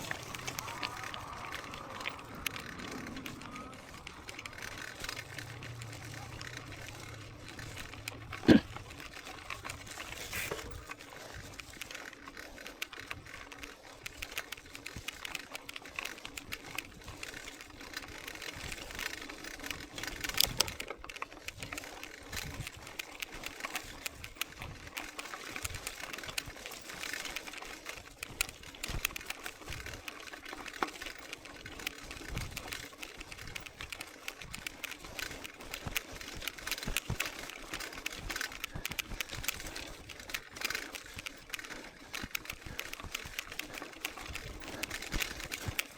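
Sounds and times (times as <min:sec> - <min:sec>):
bike chain and frame rattling: 0:00.0 - 0:45.9.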